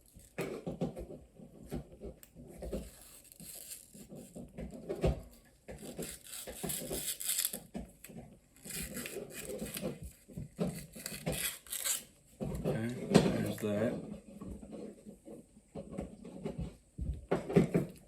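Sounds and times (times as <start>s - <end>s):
small tools clicking and tapping: 0.1s - 13.7s.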